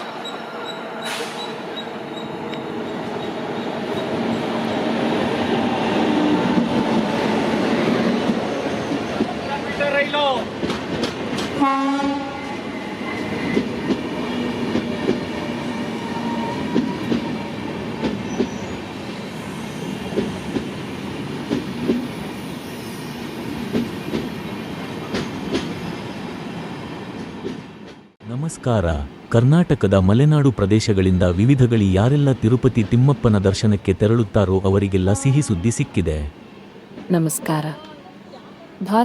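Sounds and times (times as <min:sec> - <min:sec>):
train wheels clattering on track: 0:05.5 - 0:18.8, 0:20.0 - 0:25.9
locomotive horn blast: 0:11.6 - 0:12.7, 0:35.0 - 0:36.0.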